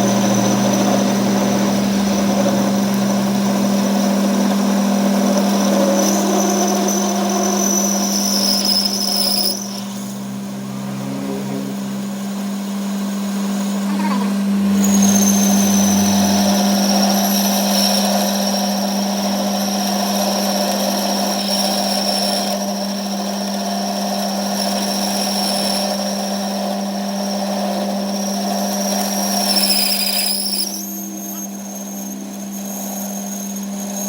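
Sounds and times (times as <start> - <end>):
power tool whining: 0.0 - 23.6.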